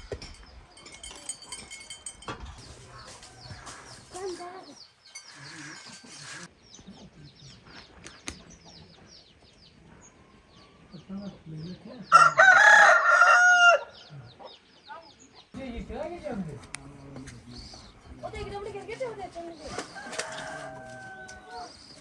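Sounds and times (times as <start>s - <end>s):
rooster crowing: 12.1s - 14.0s, 19.8s - 21.8s.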